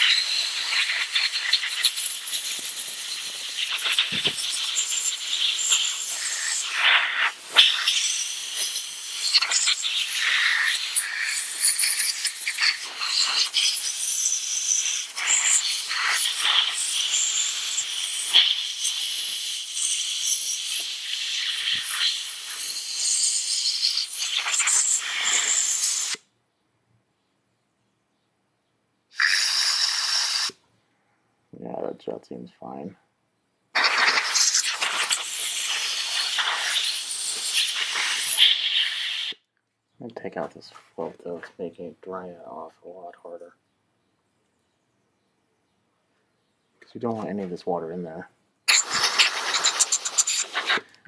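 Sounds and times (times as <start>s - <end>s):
hissing spray blasts: 0.0s - 26.2s, 29.2s - 30.6s, 33.8s - 39.4s, 48.7s - 51.0s.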